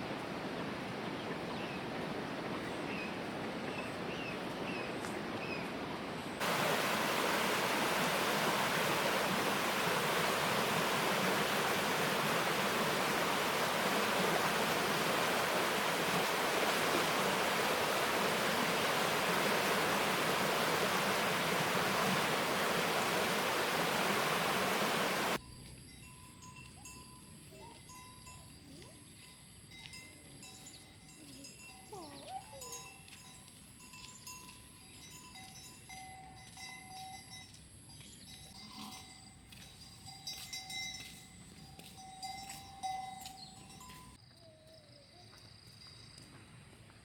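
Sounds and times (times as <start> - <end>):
rushing water: 0.0 - 25.4.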